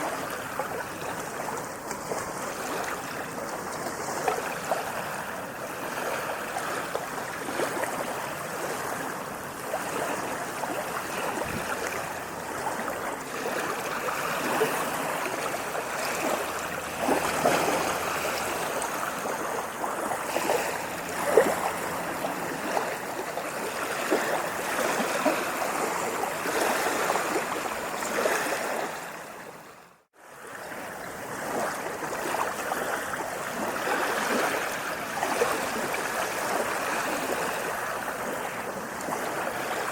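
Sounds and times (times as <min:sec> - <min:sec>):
water splashing: 0:00.0 - 0:29.5, 0:30.4 - 0:39.9.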